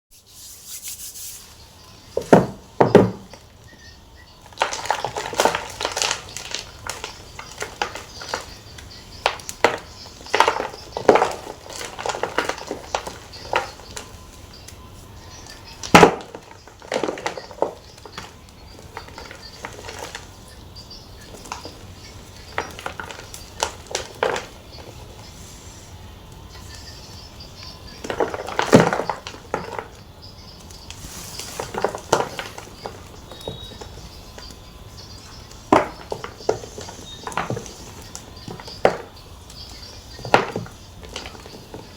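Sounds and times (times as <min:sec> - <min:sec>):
chalk crunching: 0:00.1 - 0:01.6.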